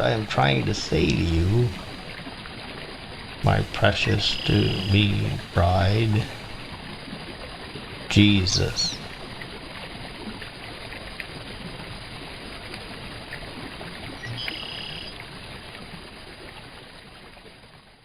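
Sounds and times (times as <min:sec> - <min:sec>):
river water flowing: 0:00.0 - 0:18.0
faint whistle-like tone: 0:14.2 - 0:15.2.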